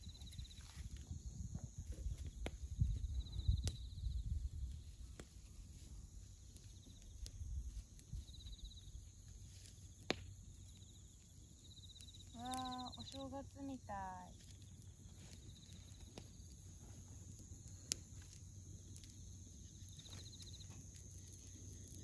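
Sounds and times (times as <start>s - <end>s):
wind rumble on microphone: 0.0s - 5.2s
bonfire crackling and popping: 0.0s - 22.0s
crickets chirping: 0.0s - 22.0s.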